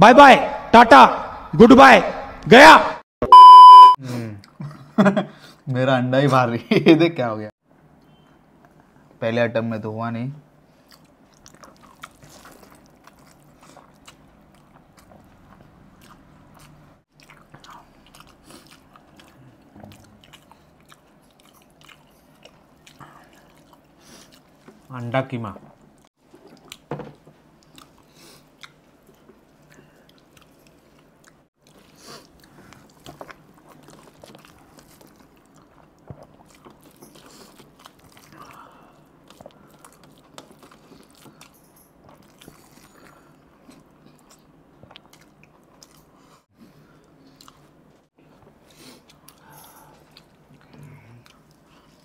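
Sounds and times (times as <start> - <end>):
people chewing with wet mouth sounds: 10.7 - 52.0.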